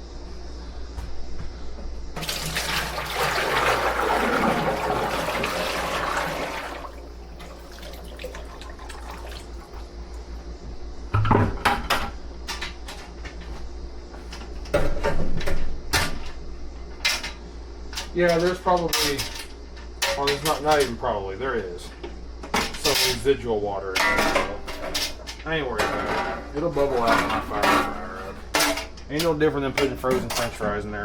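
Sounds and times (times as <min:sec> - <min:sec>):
oil pouring into fryer: 0:02.2 - 0:09.9.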